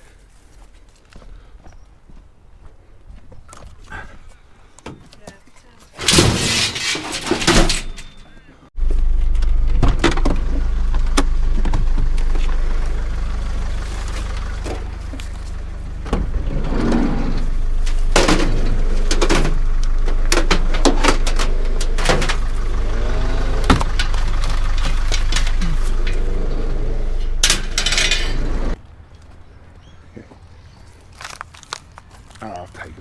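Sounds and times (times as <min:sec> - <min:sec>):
knocks and metal clanks: 0:06.0 - 0:28.8
van engine idling: 0:08.8 - 0:28.8.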